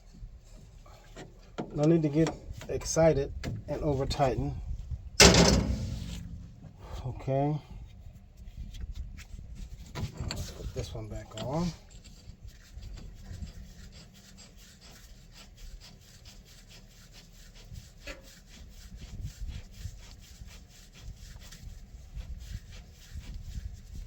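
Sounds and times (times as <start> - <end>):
low rumble: 5.2 - 7.2.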